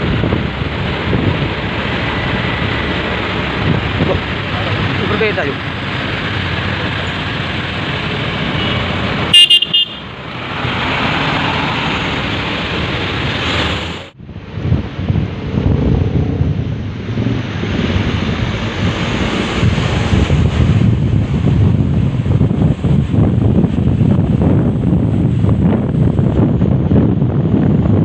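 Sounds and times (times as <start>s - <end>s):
wind rumble on microphone: 0.0s - 9.4s, 10.2s - 28.0s
passing road traffic: 0.0s - 28.0s
truck horn blasts: 8.5s - 10.1s.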